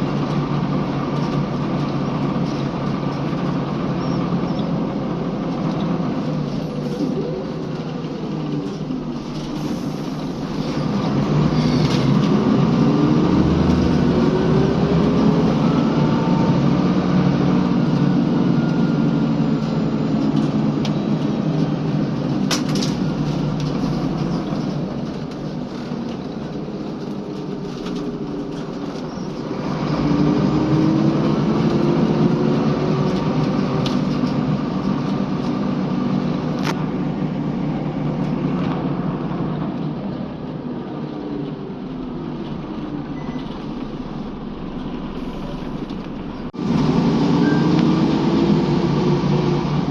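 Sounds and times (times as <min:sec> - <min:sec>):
bus engine accelerating: 0:00.0 - 0:49.9.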